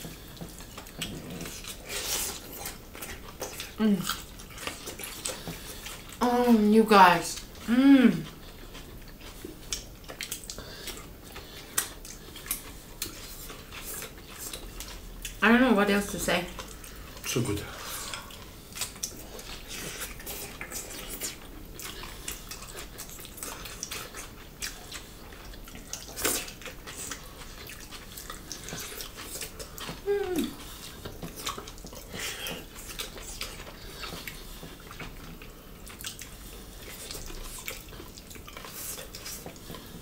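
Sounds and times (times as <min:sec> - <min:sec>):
wet chewing and lip smacks: 0:00.0 - 0:06.2, 0:07.2 - 0:15.4, 0:16.1 - 0:40.0.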